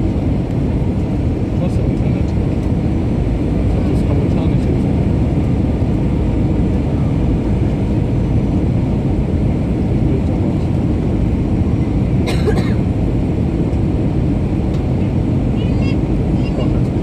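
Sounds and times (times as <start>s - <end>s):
jet engine roar inside cabin: 0.0s - 17.0s
person coughing: 12.2s - 12.9s.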